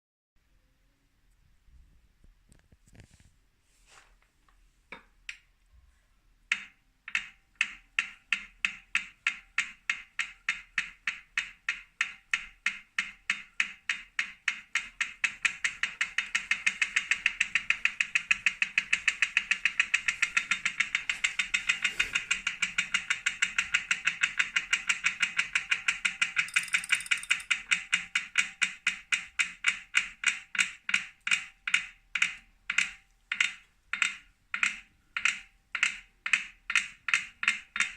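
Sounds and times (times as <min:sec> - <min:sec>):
bike trainer clicking loudly: 0:06.5 - 0:25.2, 0:25.8 - 0:27.6.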